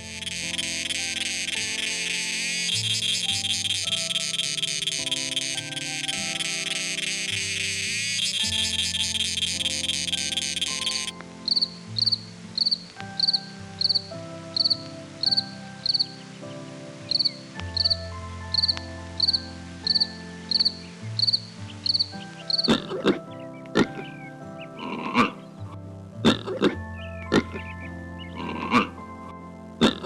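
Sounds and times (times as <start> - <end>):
dense rapid insect buzz: 0.0 - 16.1, 17.1 - 22.7
cricket chirping: 0.0 - 16.3, 17.0 - 23.1
soft background music: 0.0 - 30.0.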